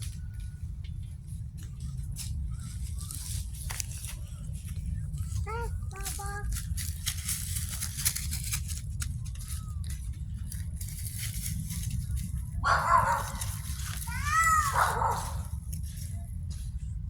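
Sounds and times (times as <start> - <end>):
steady low rumble: 0.0 - 17.0
animal calling: 12.6 - 15.5.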